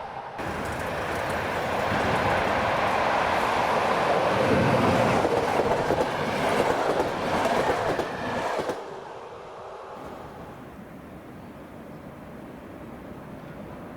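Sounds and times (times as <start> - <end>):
train wheels rumbling on rails: 0.0 - 9.1.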